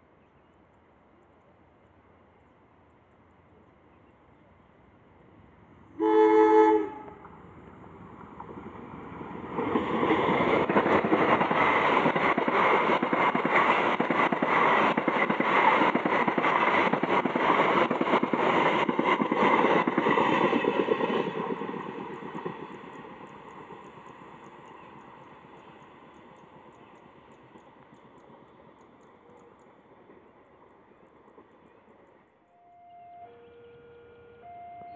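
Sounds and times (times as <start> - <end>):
train horn blast: 6.0 - 7.3, 32.5 - 34.9
train wheels clattering over rail joints: 8.1 - 24.0.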